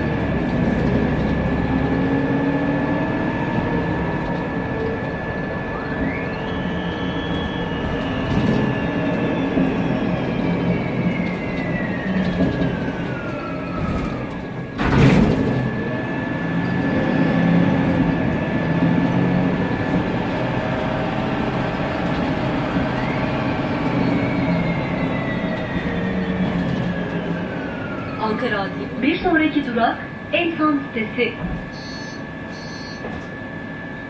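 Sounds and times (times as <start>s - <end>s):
bus engine and cooling fan: 0.0s - 34.0s
transmission whistle: 5.6s - 12.2s, 30.4s - 33.1s.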